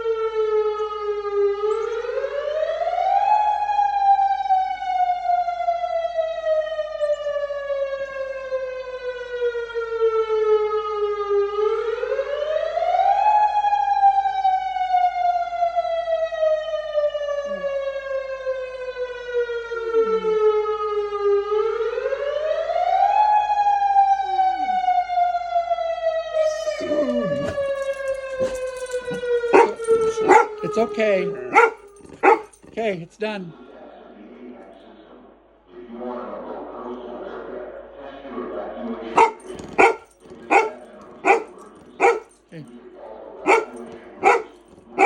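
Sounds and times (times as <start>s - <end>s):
warning siren wailing: 26.4s - 32.6s, 39.2s - 42.2s.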